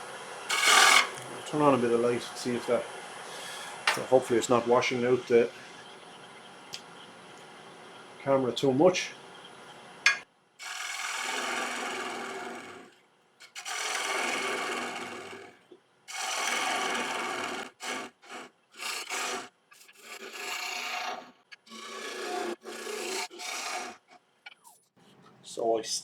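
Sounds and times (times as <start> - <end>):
gouge rasping on wood lathe: 0.0 - 2.1, 10.6 - 24.2.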